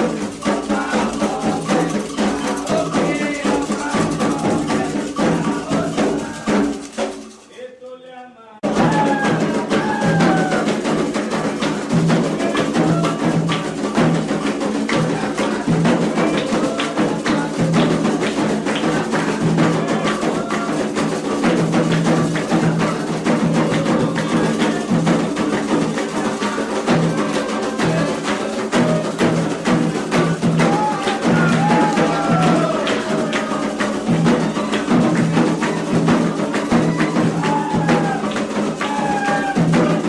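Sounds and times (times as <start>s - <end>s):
struck bell keeping time: 0.0s - 7.4s
hand drums playing fast rhythm: 0.0s - 7.5s, 8.6s - 40.0s.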